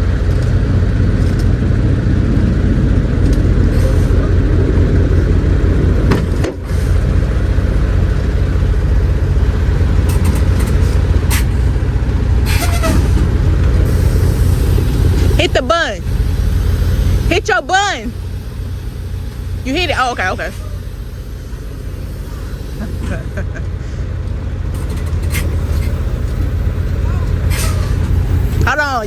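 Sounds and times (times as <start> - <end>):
diesel truck engine rumbling: 0.0 - 29.0.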